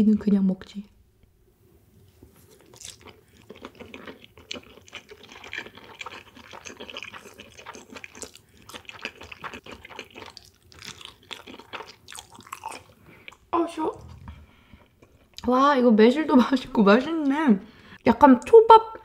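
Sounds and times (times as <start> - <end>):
person chewing with wet mouth clicks: 2.6 - 13.4.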